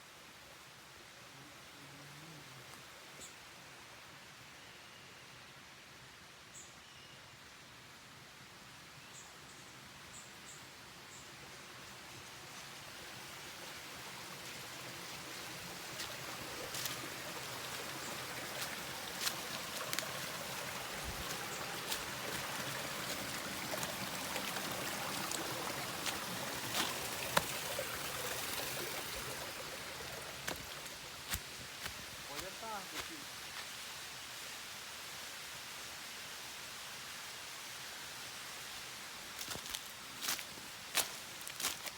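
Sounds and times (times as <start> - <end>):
water rushing over rocks: 13.7 - 33.4.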